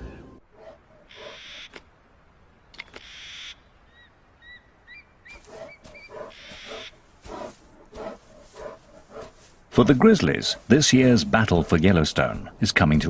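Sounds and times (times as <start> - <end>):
low repeated animal calls: 0.0 - 2.0, 2.8 - 9.5
bird chirping: 2.6 - 10.2.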